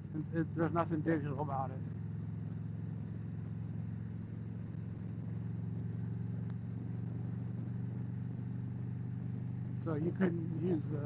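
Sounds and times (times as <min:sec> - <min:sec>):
motorcycle engine cruising: 0:00.0 - 0:11.0
wind and road noise: 0:00.0 - 0:11.0.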